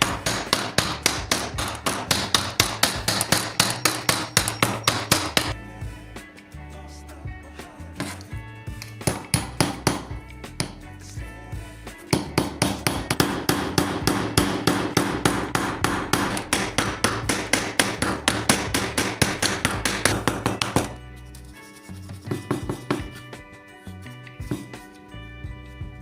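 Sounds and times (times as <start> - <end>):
rapid hammer strikes: 0.0 - 5.6, 8.8 - 10.9, 12.1 - 21.0, 22.1 - 23.4
background music: 0.0 - 26.0.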